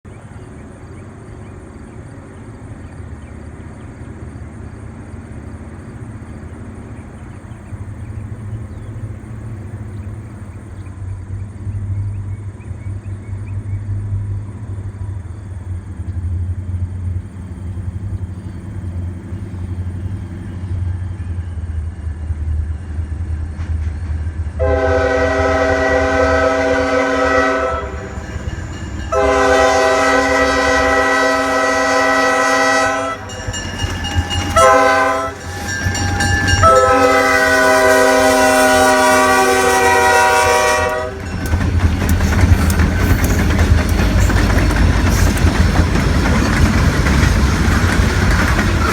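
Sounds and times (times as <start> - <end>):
diesel locomotive rumble: 0.1 - 48.9
train air horn blasts: 24.6 - 44.5
rail clatter: 26.4 - 48.9.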